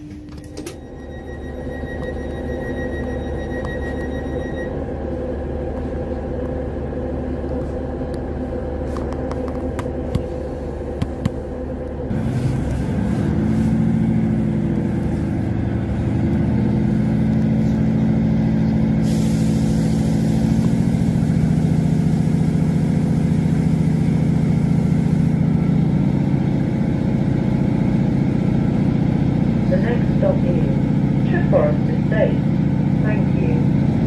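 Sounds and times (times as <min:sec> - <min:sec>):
train engine droning: 0:00.0 - 0:34.0
hiss: 0:19.0 - 0:23.9.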